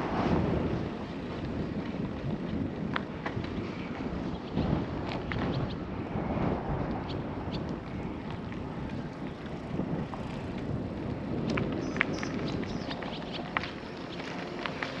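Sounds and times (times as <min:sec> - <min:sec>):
wind and tyre rumble: 0:00.0 - 0:15.0
bicycle clicks and ticks: 0:00.6 - 0:05.9, 0:06.8 - 0:15.0.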